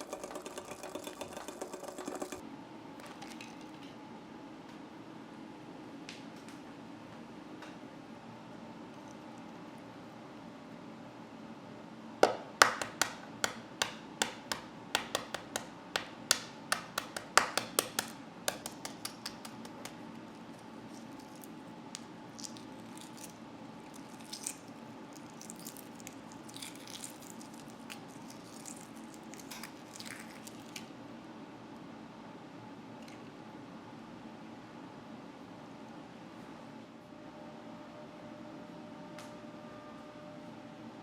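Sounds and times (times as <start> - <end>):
eggshell tapping on hard surface: 12.2 - 20.0
eggshell crackling as peeled: 16.4 - 30.9.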